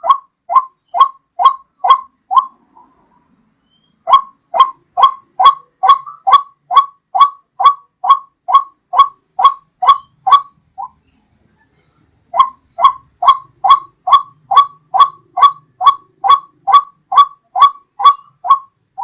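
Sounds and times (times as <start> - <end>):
waterhen calling: 0.0 - 3.0, 3.6 - 11.0, 12.3 - 19.0.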